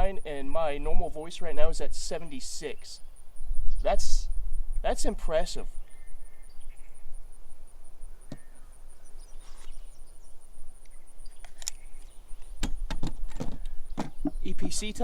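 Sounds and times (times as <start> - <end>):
equipment clicks: 10.8 - 14.8.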